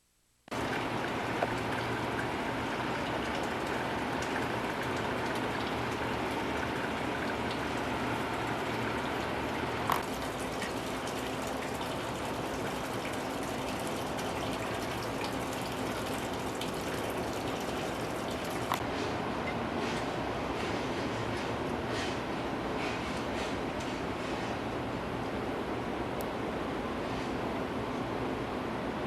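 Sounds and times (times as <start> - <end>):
rushing water: 0.5 - 18.8.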